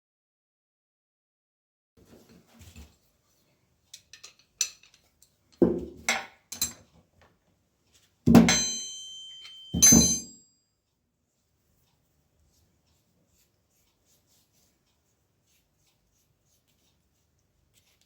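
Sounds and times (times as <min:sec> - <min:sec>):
metal parts clinking: 0:04.0 - 0:05.1
loud ringing metal clanks: 0:08.4 - 0:10.4.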